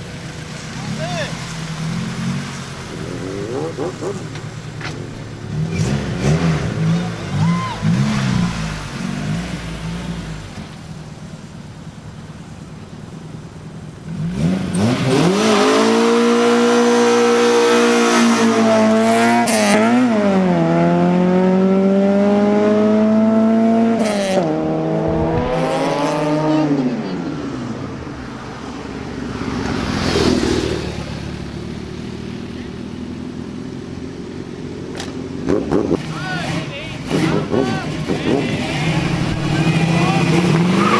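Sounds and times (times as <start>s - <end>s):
low engine rumble: 0.0s - 14.3s
vehicle engine revving hard: 0.8s - 10.5s, 14.1s - 26.9s, 35.4s - 40.9s.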